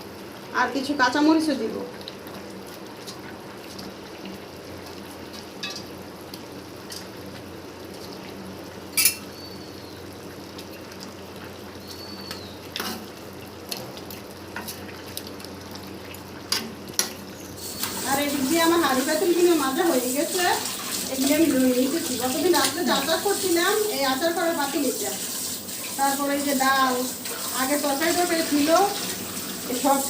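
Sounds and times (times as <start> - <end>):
curry sizzling in a pan: 0.0 - 30.0
utensil clinking against pot: 9.0 - 9.3.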